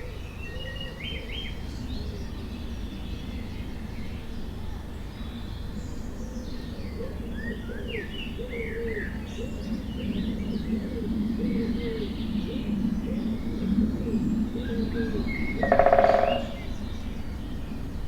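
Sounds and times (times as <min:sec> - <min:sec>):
low repeated bird notes: 0:15.3 - 0:17.2
birds chirping and whistling: 0:15.4 - 0:16.8.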